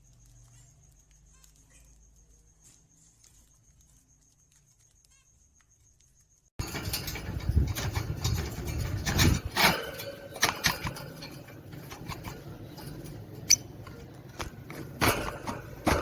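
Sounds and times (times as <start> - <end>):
birds scratching and shuffling: 6.6 - 16.0.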